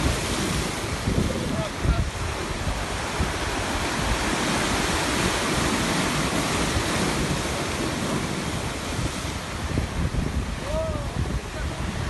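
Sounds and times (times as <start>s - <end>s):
sea waves washing onto shore: 0.0s - 12.0s.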